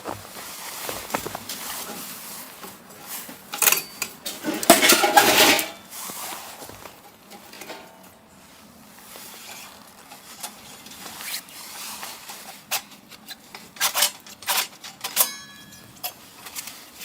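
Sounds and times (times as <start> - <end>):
metal cookware clinking and clattering: 3.5 - 5.9.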